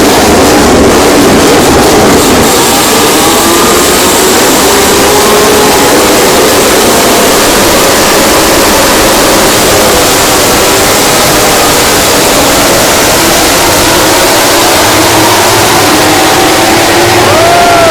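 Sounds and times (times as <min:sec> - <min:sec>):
racing motorcycle engines distorted: 0:00.0 - 0:17.9.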